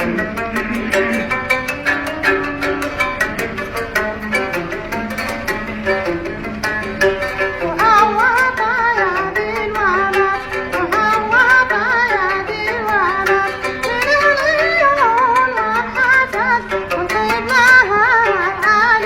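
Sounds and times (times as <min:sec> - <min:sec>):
plucked string instrument: 0:00.0 - 0:19.0
man singing in high voice: 0:07.5 - 0:19.0.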